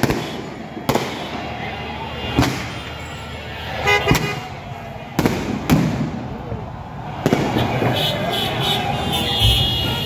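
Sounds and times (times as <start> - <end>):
crowd din: 0.0 - 10.0
fireworks bangs: 0.0 - 10.0
horn toot: 2.2 - 4.6, 7.5 - 10.0.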